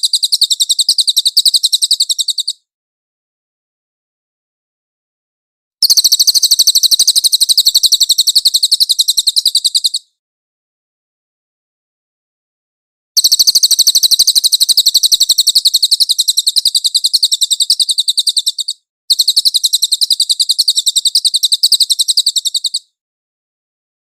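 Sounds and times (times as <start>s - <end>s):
songbird high-pitched trills: 0.0s - 2.6s, 5.8s - 10.1s, 13.2s - 22.9s.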